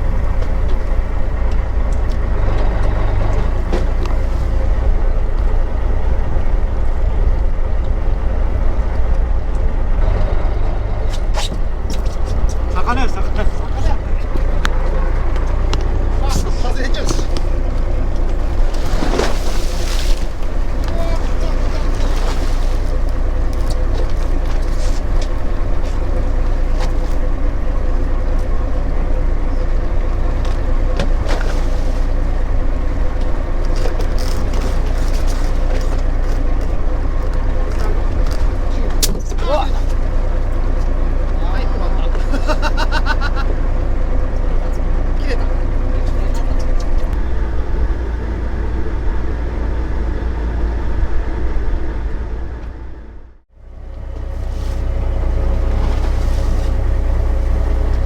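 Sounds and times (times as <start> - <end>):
boat engine running: 0.0 - 58.0
wind and water hiss: 17.4 - 27.7, 54.2 - 58.0.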